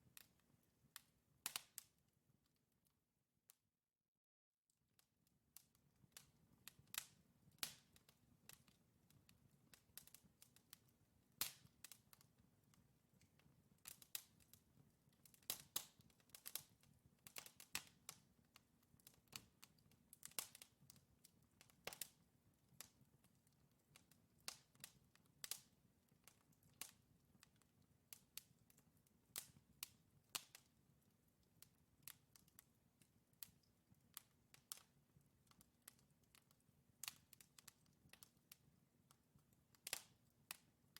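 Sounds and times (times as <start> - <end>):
logs crackling in fireplace: 0.0 - 2.1, 5.6 - 40.9
sharp pops and snaps: 6.2 - 10.8, 11.4 - 12.4, 13.2 - 22.2, 22.8 - 30.7, 32.0 - 40.7.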